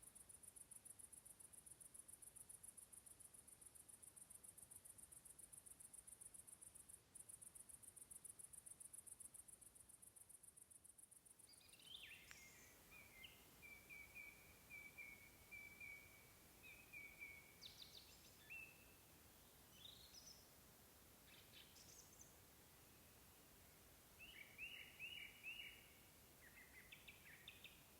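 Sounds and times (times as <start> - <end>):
faint birdsong: 10.9 - 27.9.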